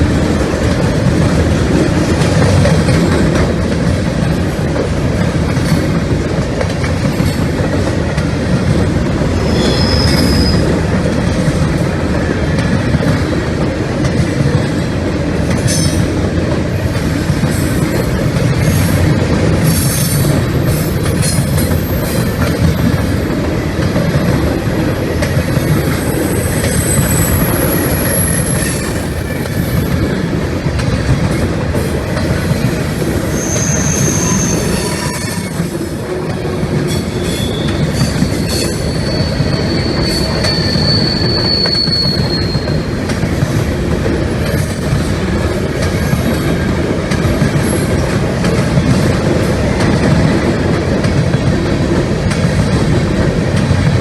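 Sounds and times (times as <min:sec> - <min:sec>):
freight train wheels rumbling on rail: 0:00.0 - 0:54.0
high-pitched wheel squeals: 0:09.5 - 0:10.8, 0:26.0 - 0:30.0, 0:33.3 - 0:35.6, 0:37.1 - 0:42.9.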